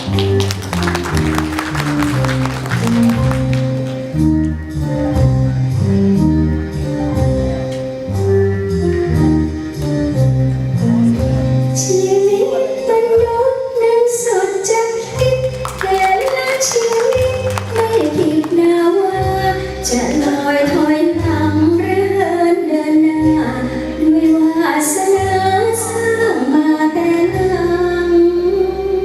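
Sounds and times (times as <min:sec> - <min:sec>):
higher melody line: 0:00.0 - 0:05.9, 0:15.1 - 0:21.7
band accompaniment: 0:00.0 - 0:12.0, 0:15.0 - 0:21.8.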